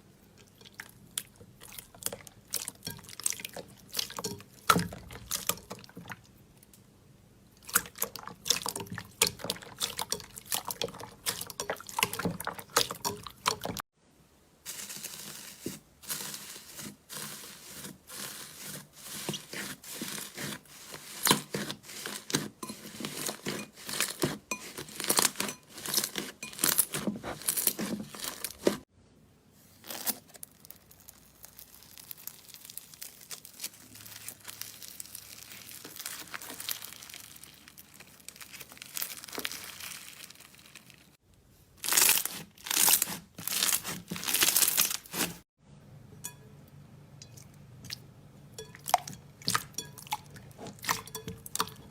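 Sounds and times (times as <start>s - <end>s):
slime squeezed with wet crackles: 29.8s - 41.2s, 41.8s - 45.4s.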